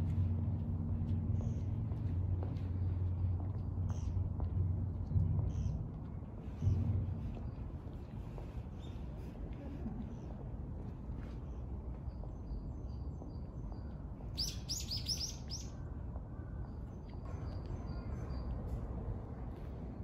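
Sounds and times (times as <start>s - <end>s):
low background rumble: 0.0s - 14.3s.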